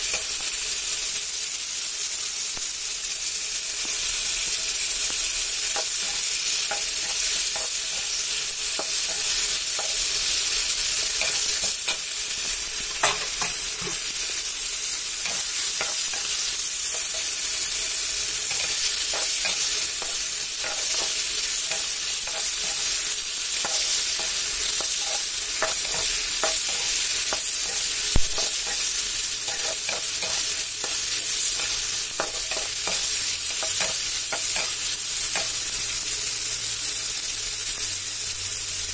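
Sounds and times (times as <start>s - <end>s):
tomatoes sizzling in hot oil: 0.0s - 38.9s
metal spatula scraping and clinking: 5.8s - 8.1s, 10.9s - 12.1s, 12.9s - 14.1s, 15.2s - 17.4s, 18.4s - 35.6s.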